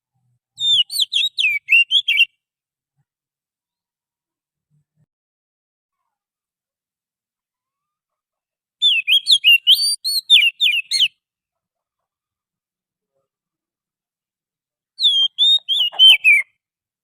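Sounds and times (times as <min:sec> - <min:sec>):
magpie-robin singing: 0:00.6 - 0:02.3, 0:08.8 - 0:11.2, 0:15.0 - 0:16.5.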